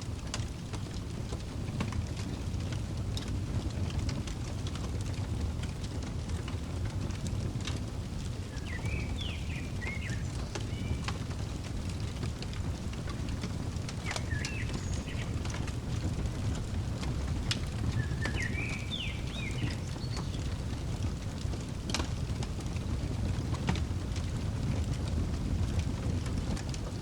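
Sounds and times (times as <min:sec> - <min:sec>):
fireplace wood burning: 0:00.0 - 0:27.0
wood popping and snapping: 0:04.1 - 0:24.4
bird chirping: 0:08.4 - 0:12.3, 0:13.1 - 0:20.8.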